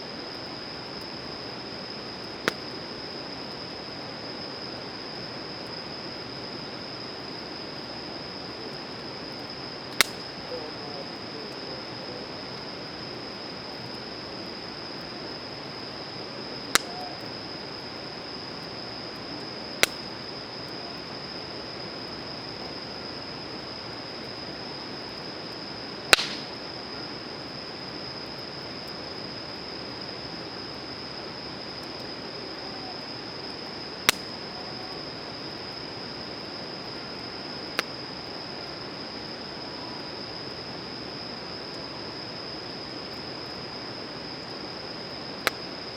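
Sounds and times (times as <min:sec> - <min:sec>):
campfire hissing: 0:00.0 - 0:45.9
wood popping in fire: 0:02.3 - 0:02.8, 0:09.9 - 0:10.4, 0:16.6 - 0:17.0, 0:19.2 - 0:20.2, 0:26.1 - 0:26.7, 0:34.0 - 0:34.3.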